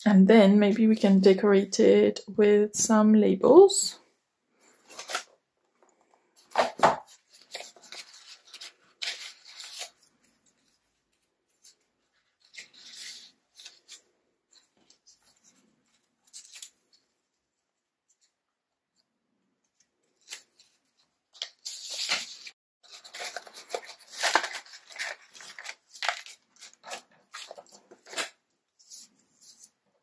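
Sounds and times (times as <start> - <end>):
paper sheets rustling: 4.7 - 5.3, 6.4 - 10.9, 20.2 - 29.8.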